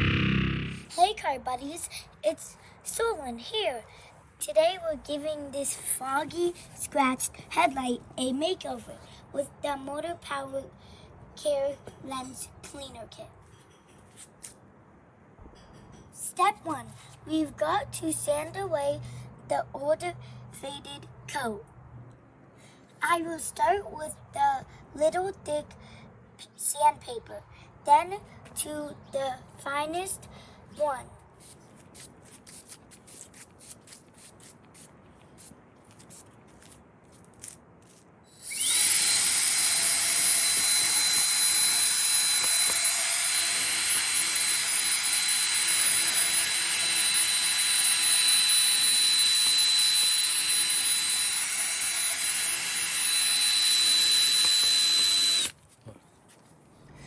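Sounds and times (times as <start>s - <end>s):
power drill sanding with high whine: 38.3s - 55.5s.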